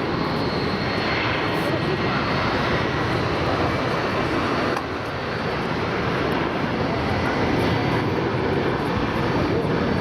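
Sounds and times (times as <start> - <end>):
airliner engines rushing: 0.0 - 10.0.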